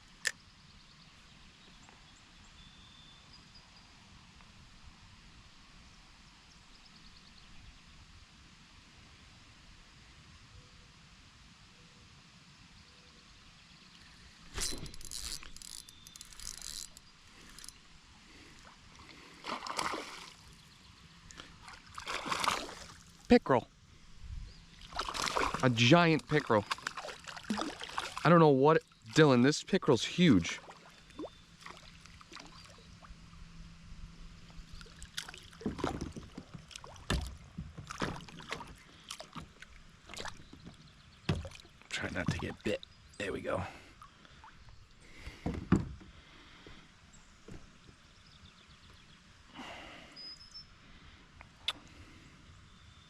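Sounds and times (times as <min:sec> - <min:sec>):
water splashing beside kayak: 0:18.4 - 0:20.6, 0:21.3 - 0:23.3, 0:24.7 - 0:28.2, 0:34.7 - 0:42.8.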